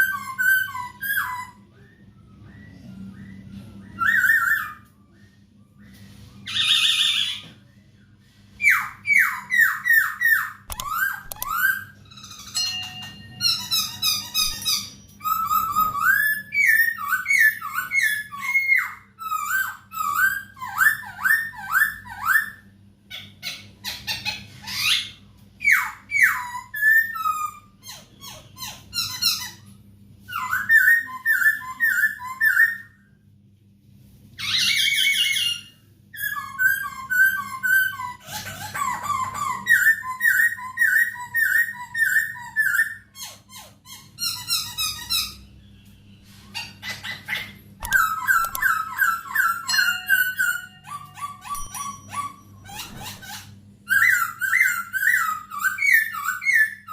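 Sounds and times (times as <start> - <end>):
laughingthrush singing whistled notes: 0.0 - 7.5, 47.2 - 53.0
bird chattering: 8.7 - 17.9, 46.6 - 56.9.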